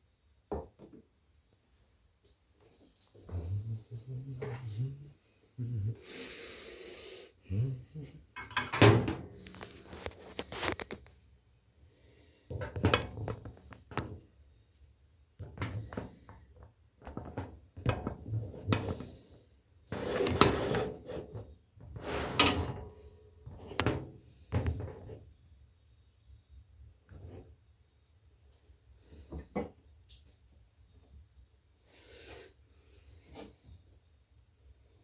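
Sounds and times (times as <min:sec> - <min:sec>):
kitchenware clattering: 0:08.4 - 0:09.7.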